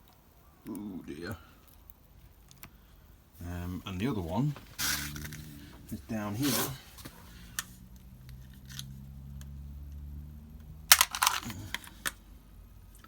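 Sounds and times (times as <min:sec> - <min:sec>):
low steady hum: 0:00.0 - 0:13.0
sharp metallic clicks: 0:10.6 - 0:12.2.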